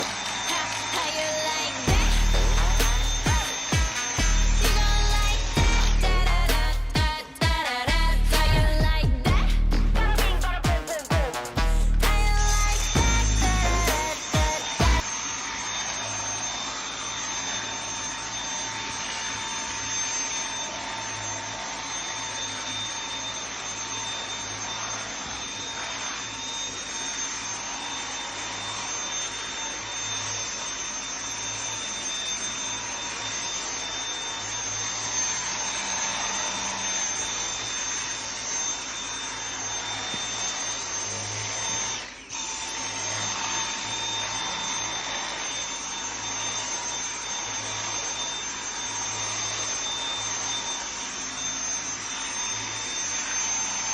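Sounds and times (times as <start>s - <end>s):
vacuum cleaner running: 0.0s - 53.9s.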